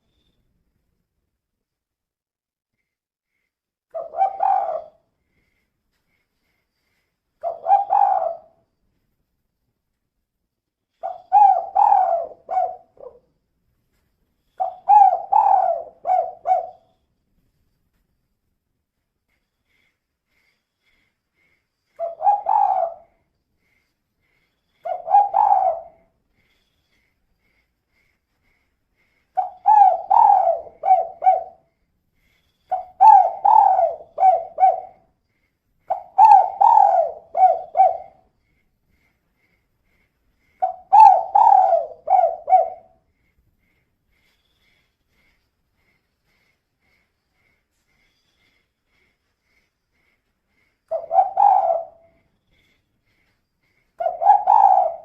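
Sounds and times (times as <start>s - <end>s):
dove cooing: 4.0s - 5.0s, 7.4s - 8.6s, 11.0s - 13.2s, 14.6s - 16.9s, 22.0s - 23.2s, 24.8s - 26.1s, 29.4s - 31.7s, 32.7s - 35.0s, 35.9s - 38.2s, 40.6s - 43.0s, 50.9s - 52.7s, 54.0s - 55.0s.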